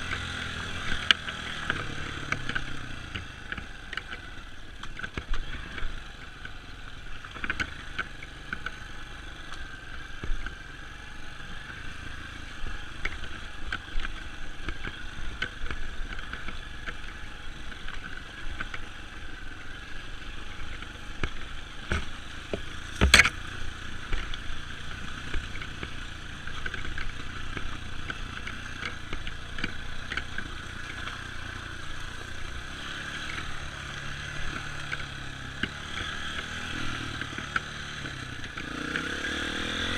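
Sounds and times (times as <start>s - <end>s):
dirt bike engine running: 0.0s - 39.9s
knocks and rattles from rough ground: 20.7s - 24.4s.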